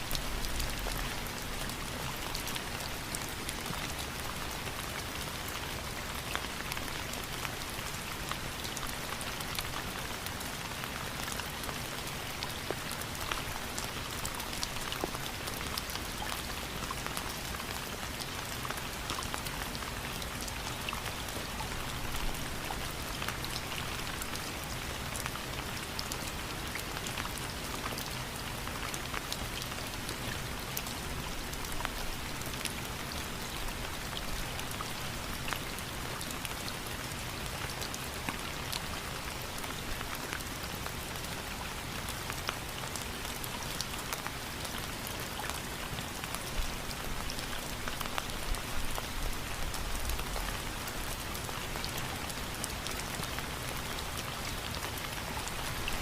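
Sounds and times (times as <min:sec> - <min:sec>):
rain pattering: 0:00.0 - 0:56.0.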